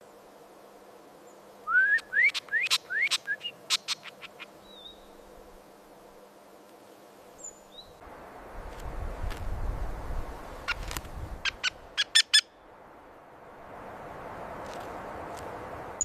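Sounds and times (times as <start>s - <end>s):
songbird whistling song: 1.6s - 5.1s.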